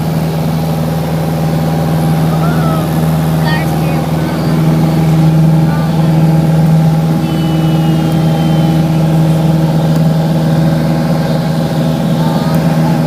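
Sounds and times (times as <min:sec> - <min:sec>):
propeller plane engine droning: 0:00.0 - 0:13.0.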